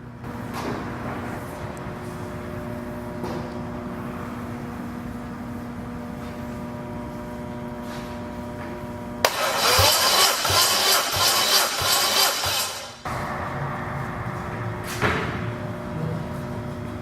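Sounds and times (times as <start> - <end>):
starter motor cranking engine: 9.2 - 13.0.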